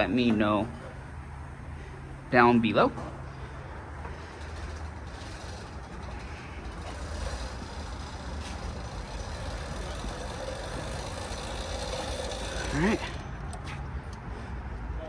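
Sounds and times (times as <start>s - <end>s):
small engine running: 4.0s - 13.8s.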